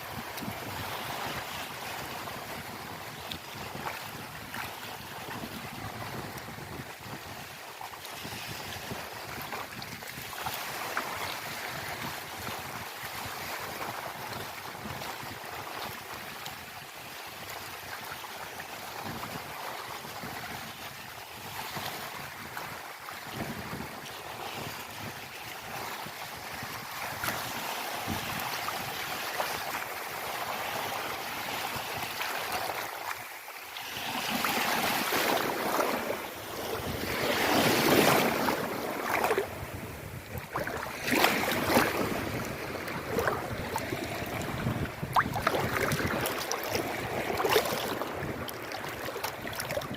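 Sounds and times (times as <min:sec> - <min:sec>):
wind buffeting microphone: 0:00.0 - 0:16.3, 0:18.9 - 0:29.8, 0:34.2 - 0:49.9
ocean waves washing: 0:24.2 - 0:49.9.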